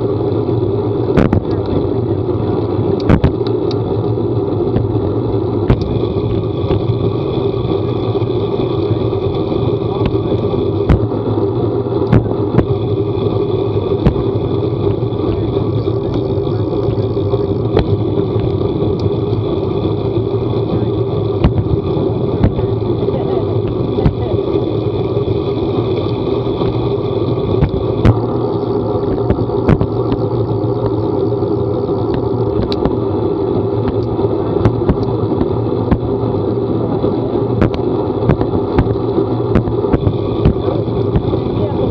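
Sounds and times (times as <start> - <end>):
vehicle running drone: 0.0 - 41.9.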